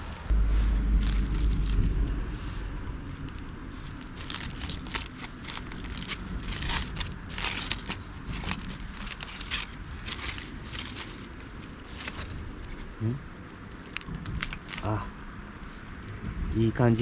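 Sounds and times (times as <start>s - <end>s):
campfire crackling and popping: 2.6s - 15.9s.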